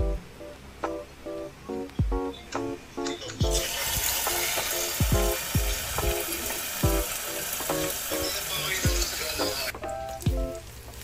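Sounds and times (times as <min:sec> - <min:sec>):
lo-fi music with kick drum: 0:00.0 - 0:02.7, 0:03.4 - 0:11.0
food sizzling in a pan: 0:03.5 - 0:09.7.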